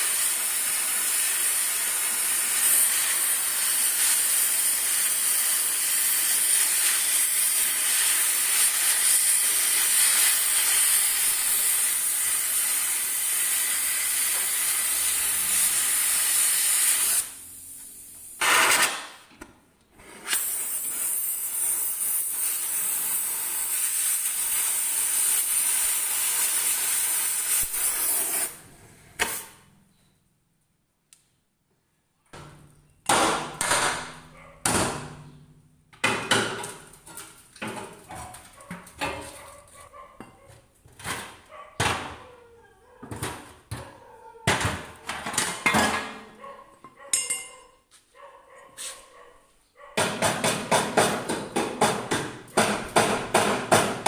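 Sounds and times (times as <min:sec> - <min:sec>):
loud hiss: 0:00.0 - 0:19.0
hammer striking metal: 0:47.2 - 0:47.6.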